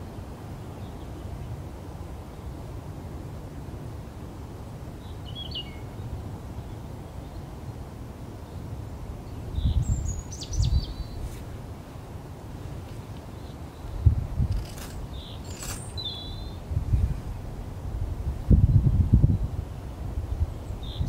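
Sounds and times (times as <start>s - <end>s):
small birds chirping: 5.0s - 7.5s, 8.4s - 11.4s, 13.2s - 16.6s, 20.3s - 21.0s
wind rumbling on microphone: 8.8s - 11.8s, 13.7s - 21.0s.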